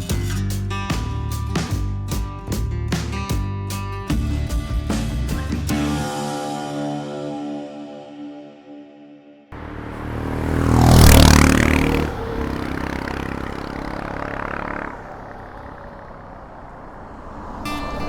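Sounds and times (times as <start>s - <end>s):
motorcycle passing by: 9.5s - 18.0s.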